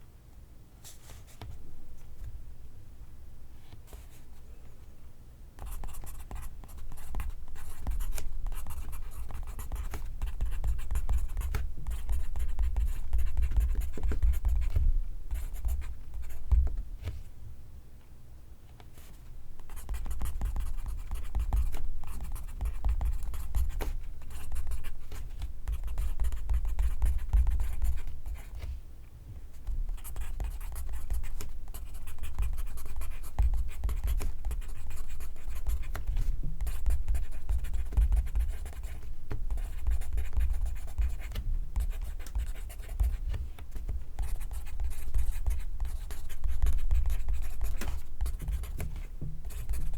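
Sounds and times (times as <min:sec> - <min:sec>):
pencil writing on paper: 0:05.6 - 0:16.5, 0:19.7 - 0:25.0, 0:25.7 - 0:28.6, 0:29.9 - 0:36.0, 0:36.6 - 0:43.3, 0:44.2 - 0:49.9.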